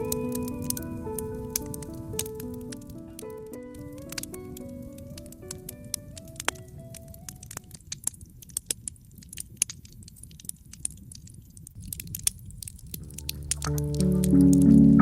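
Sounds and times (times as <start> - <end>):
soft music: 0.0 - 7.8, 13.0 - 15.0
wood fire crackling: 0.0 - 15.0.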